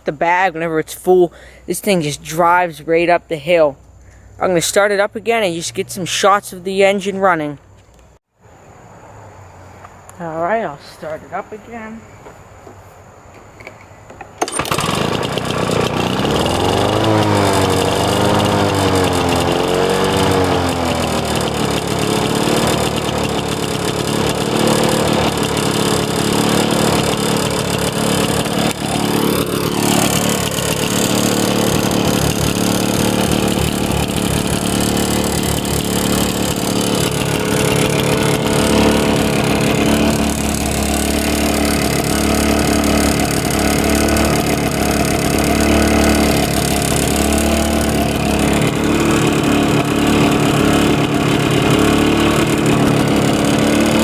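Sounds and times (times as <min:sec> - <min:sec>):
lawn mower engine starting and running: 0:00.0 - 0:08.2, 0:13.4 - 0:54.0.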